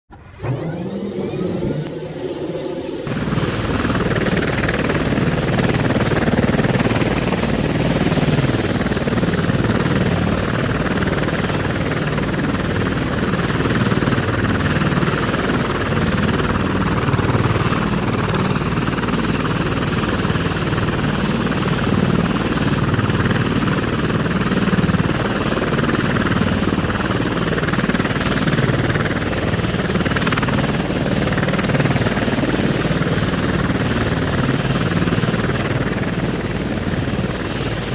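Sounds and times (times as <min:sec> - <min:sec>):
thin high whine: 0:00.1 - 0:04.0.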